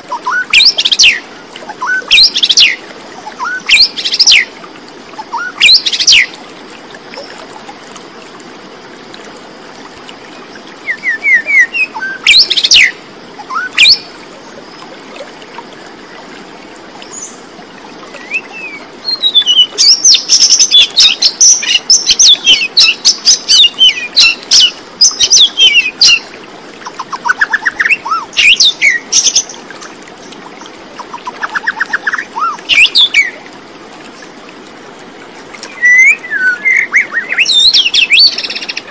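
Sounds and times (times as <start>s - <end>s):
steady background hiss: 0.0s - 38.9s
birds chirping and trilling: 10.8s - 14.1s, 18.2s - 29.6s, 31.0s - 33.4s, 35.7s - 38.9s.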